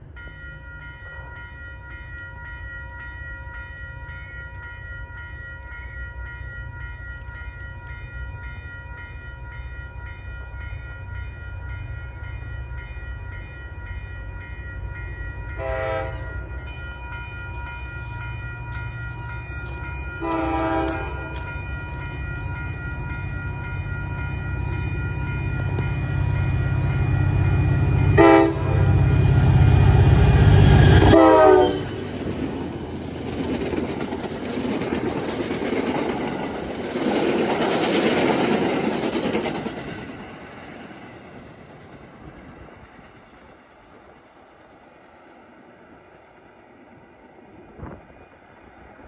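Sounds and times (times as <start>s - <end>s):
diesel locomotive engine drone: 0.0s - 49.0s
train cars rattling on rails: 12.0s - 49.0s
train horn blasts: 15.5s - 16.4s, 20.2s - 21.5s, 27.7s - 32.0s.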